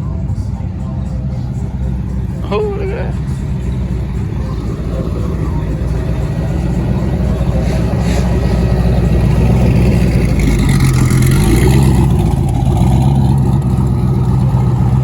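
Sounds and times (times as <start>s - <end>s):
car engine inside moving car: 0.0s - 15.0s
road noise: 0.0s - 15.0s.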